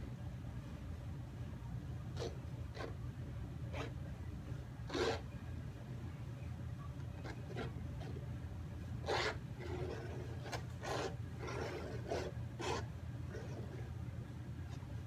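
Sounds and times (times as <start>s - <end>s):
steady low hum: 0.0s - 15.0s
palette knife scraping canvas: 4.9s - 5.2s, 9.0s - 13.8s.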